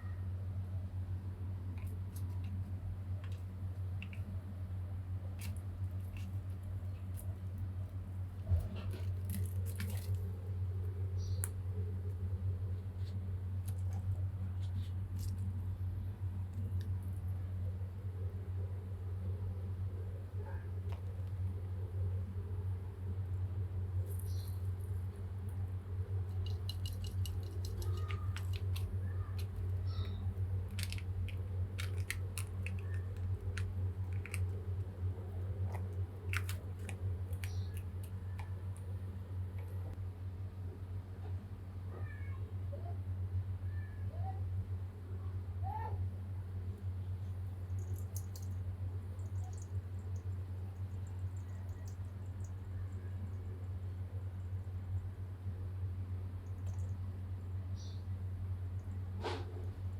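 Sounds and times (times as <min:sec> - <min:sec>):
low hum: 0:00.0 - 0:42.0
light clicks taps and rustles: 0:26.3 - 0:34.9, 0:35.6 - 0:38.9, 0:47.7 - 0:48.6
light ticks and rustles: 0:47.2 - 0:53.5.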